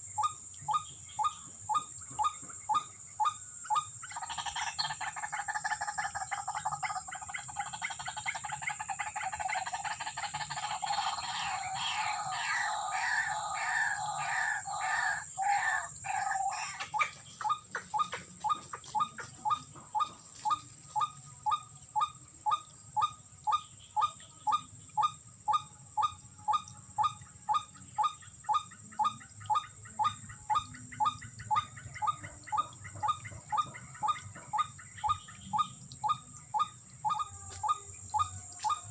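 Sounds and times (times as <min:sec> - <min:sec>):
high insect whine: 0:00.0 - 0:19.0, 0:34.1 - 0:38.9
monotonous bird call: 0:00.0 - 0:38.9
waterhen croaking calls: 0:00.0 - 0:38.9.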